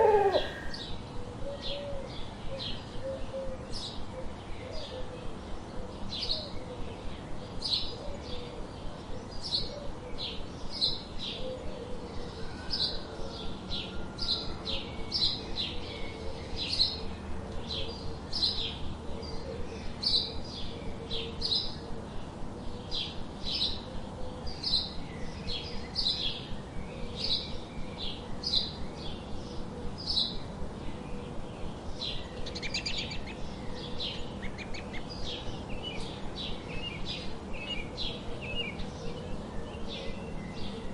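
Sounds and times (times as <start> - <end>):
bird trilling: 0.0 - 0.8
songbirds chirping: 0.0 - 0.9, 17.9 - 40.9.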